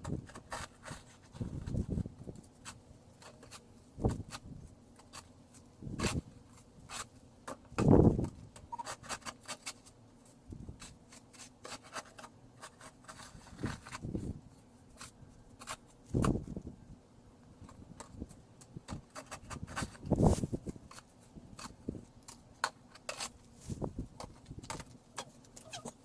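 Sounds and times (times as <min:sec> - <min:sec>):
snow shovel scraping snow: 0:20.1 - 0:20.6, 0:23.5 - 0:24.0.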